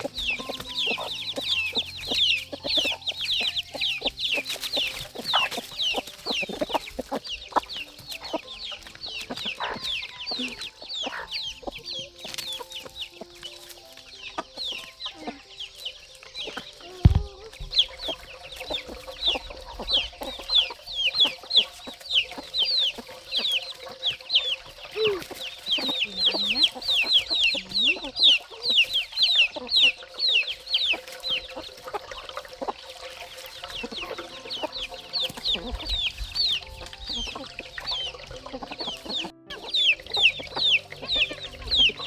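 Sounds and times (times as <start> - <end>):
chicks peeping: 0.0 - 42.0
thump: 17.0 - 17.8.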